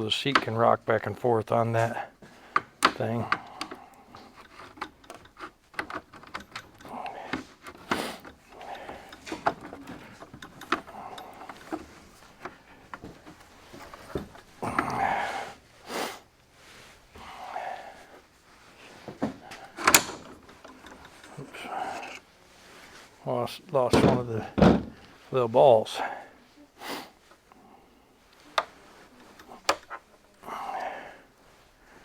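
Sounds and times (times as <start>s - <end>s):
metal parts clicking and knocking: 2.5s - 15.2s, 19.1s - 22.3s, 28.6s - 30.1s
metal scraping: 19.4s - 22.3s.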